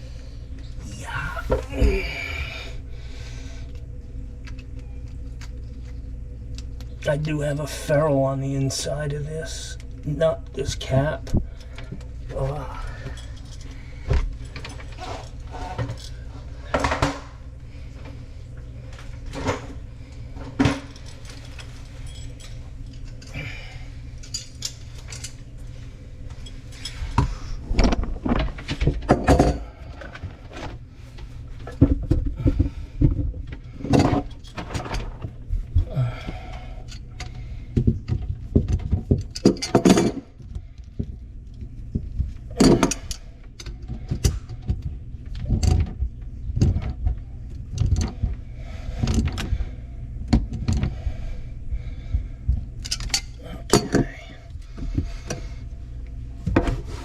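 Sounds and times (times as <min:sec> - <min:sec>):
steady low hum: 0:00.0 - 0:57.0
metal tools clinking and rattling: 0:11.0 - 0:17.2, 0:20.6 - 0:25.4, 0:26.3 - 0:30.2, 0:38.7 - 0:40.3, 0:42.6 - 0:44.4, 0:52.8 - 0:54.4.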